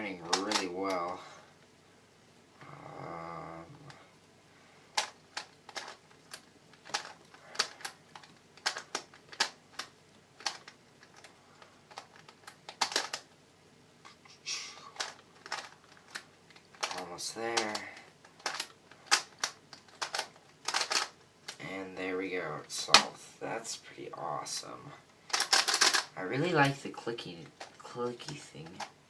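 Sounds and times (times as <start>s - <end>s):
puzzle layers clicking: 0.2s - 1.2s, 4.9s - 13.4s, 14.1s - 21.6s, 25.2s - 29.0s.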